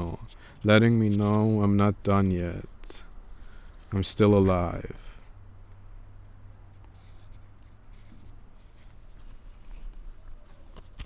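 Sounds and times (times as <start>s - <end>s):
scratchy rustling: 0.0s - 1.8s
low steady hum: 0.0s - 11.0s.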